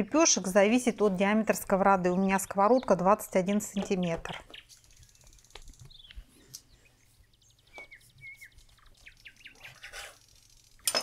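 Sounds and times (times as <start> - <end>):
bird chirps and trills: 2.0 - 10.8.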